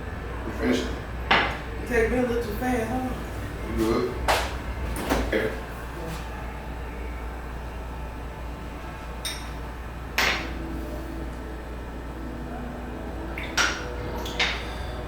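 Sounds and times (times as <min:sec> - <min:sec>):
steady low hum: 0:00.0 - 0:15.0
glass clinking on hard surface: 0:09.2 - 0:09.6.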